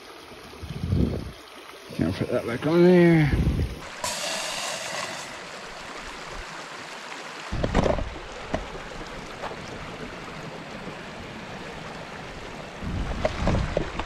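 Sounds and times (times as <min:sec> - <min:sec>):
creek rushing: 0:00.0 - 0:14.0
camp stove burner hissing: 0:02.8 - 0:06.4
knock or rustle: 0:07.6 - 0:08.7.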